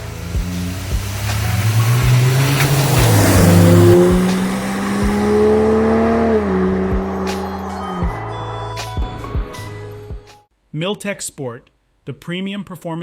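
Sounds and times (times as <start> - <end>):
car engine revving: 0.0 - 10.2.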